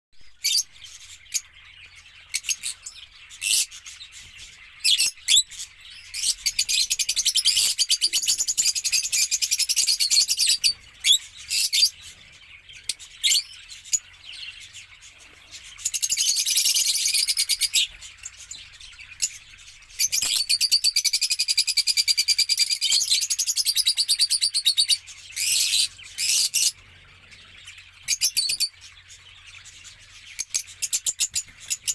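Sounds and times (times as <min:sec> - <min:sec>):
parrots chattering: 0:00.4 - 0:31.9.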